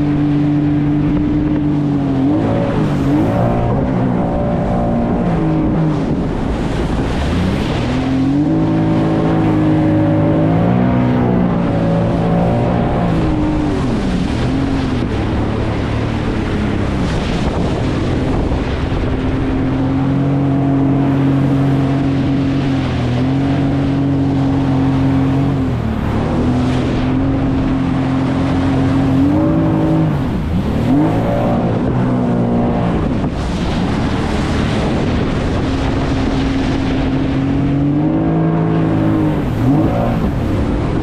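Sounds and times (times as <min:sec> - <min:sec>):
jet ski engine running: 0:00.0 - 0:41.0
rush of water and wind: 0:00.0 - 0:41.0.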